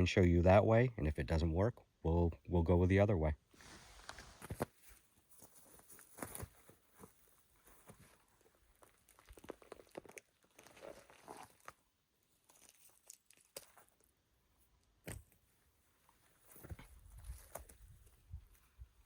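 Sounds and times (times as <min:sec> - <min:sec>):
crunching and tearing: 0:08.8 - 0:11.8, 0:12.4 - 0:14.1.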